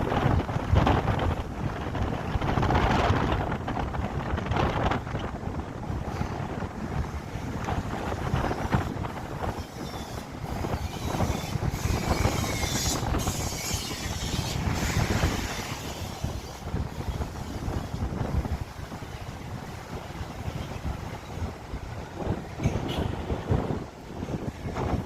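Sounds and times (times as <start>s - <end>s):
vehicle engine and road rumble: 0.0s - 25.0s
wind buffeting microphone: 0.0s - 25.0s.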